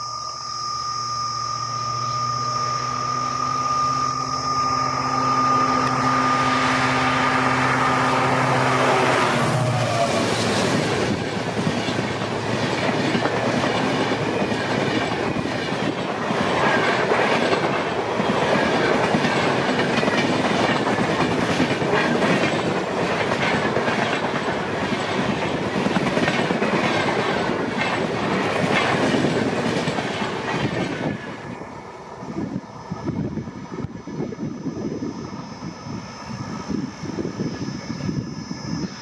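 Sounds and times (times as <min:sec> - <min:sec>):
train wheels clattering over rail joints: 0:10.1 - 0:31.5.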